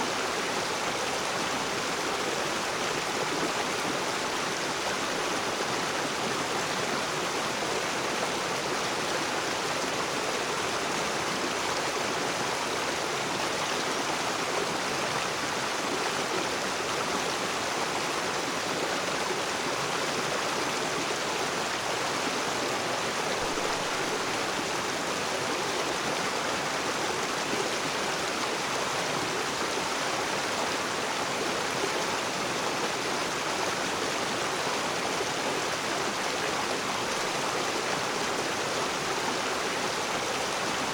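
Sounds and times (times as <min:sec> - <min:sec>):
river water rushing over rocks: 0:00.0 - 0:40.9.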